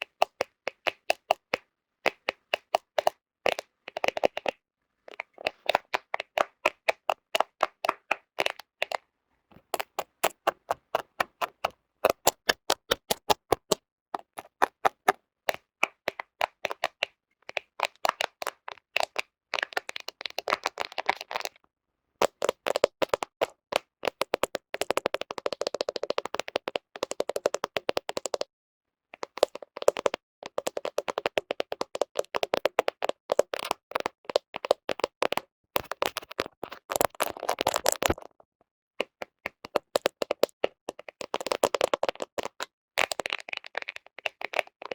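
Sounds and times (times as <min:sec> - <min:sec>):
fingernails tapping on camera: 0:09.6 - 0:15.6.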